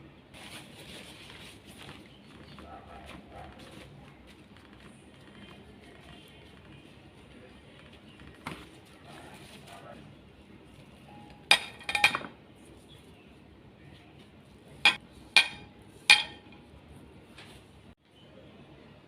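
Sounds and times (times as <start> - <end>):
utensils clinking against a dish: 11.2 - 12.4, 14.8 - 16.7.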